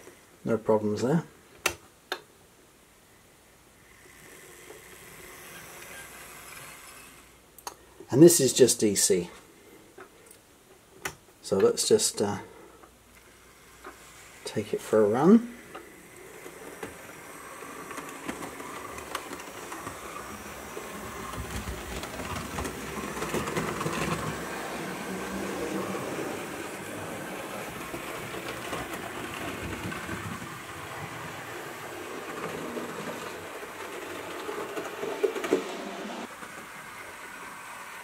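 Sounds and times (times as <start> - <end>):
model train motor whirring: 3.8 - 7.4, 13.2 - 38.0
wheels clicking over track: 15.1 - 37.2.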